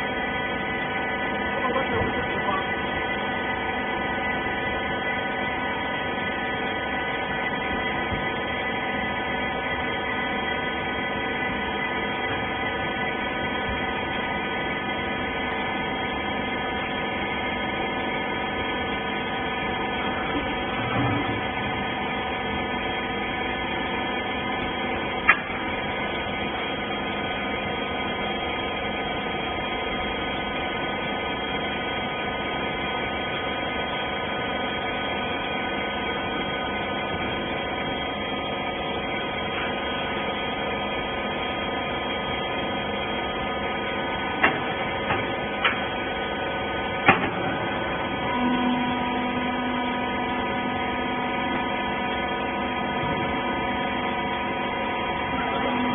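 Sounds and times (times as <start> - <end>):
hydraulic power unit humming: 0.0 - 55.9.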